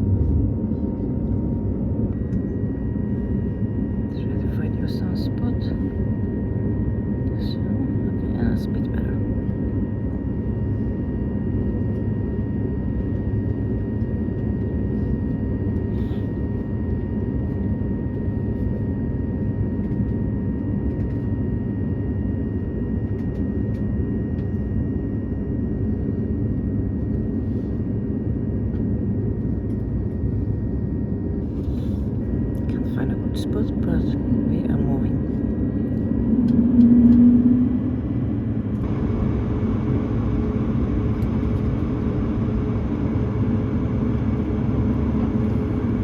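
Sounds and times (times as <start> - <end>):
airplane cabin rumble: 0.0 - 46.0
faint whining tones: 0.0 - 46.0.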